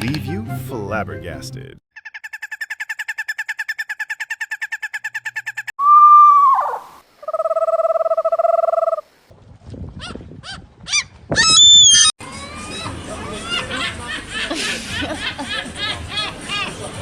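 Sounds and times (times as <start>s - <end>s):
bird whistle dropping in pitch: 5.8s - 9.0s.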